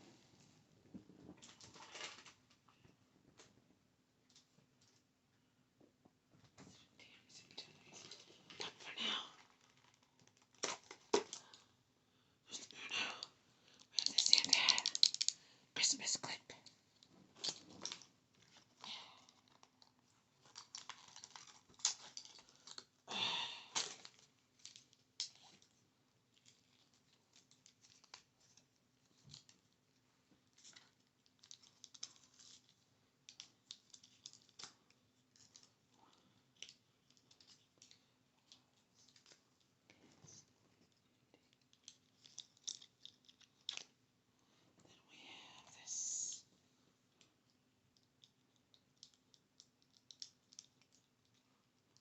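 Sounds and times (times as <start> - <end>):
rustle or crinkle: 1.4 - 2.5, 7.7 - 11.6, 17.0 - 22.9, 23.7 - 35.9, 36.5 - 44.0
tapping on small hard items: 14.0 - 15.4.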